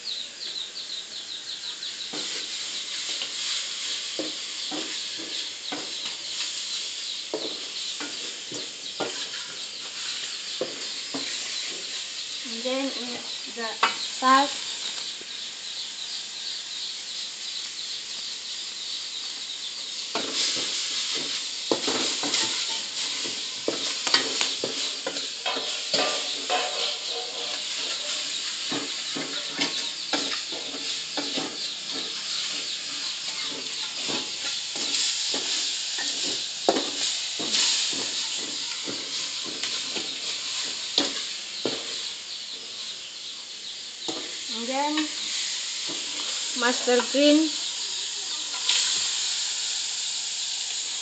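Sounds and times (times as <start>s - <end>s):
paste sizzling in hot oil: 0.0s - 51.0s
spatula scraping a pan: 2.1s - 12.0s, 20.1s - 42.0s, 45.0s - 47.6s, 48.4s - 50.1s.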